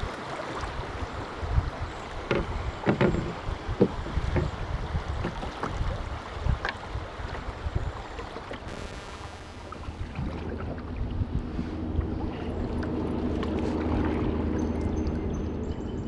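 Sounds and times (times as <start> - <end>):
water splashing around paddle: 0.0 - 7.7
paddle knocking against canoe: 2.2 - 6.0.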